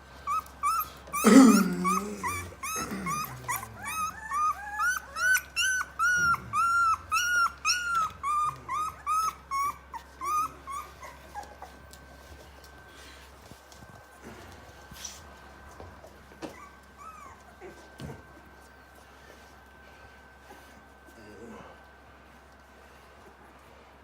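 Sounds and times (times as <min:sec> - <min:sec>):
puppies whimpering: 0:00.1 - 0:12.3, 0:16.4 - 0:18.3
puppy crying: 0:00.2 - 0:11.9, 0:16.4 - 0:17.8.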